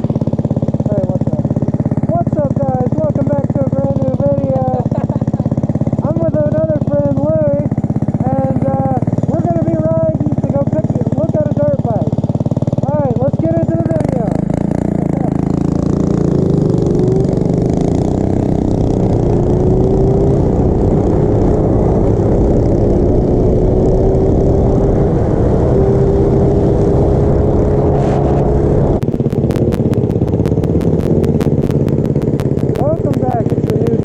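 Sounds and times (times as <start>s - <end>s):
small motorbike engine: 0.0s - 34.0s
pulsing beat: 28.8s - 34.0s.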